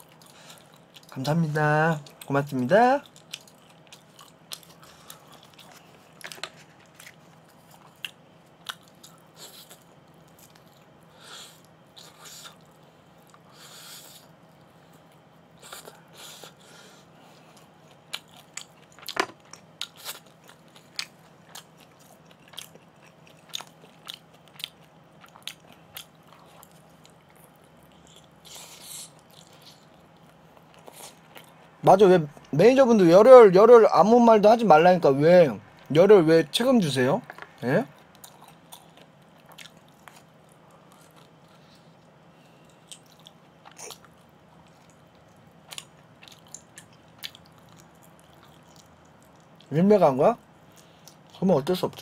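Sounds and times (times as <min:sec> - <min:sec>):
person chewing: 0:00.0 - 0:01.2, 0:03.0 - 0:16.7, 0:17.3 - 0:32.5, 0:37.2 - 0:49.7
faint steady hum: 0:00.0 - 0:52.0.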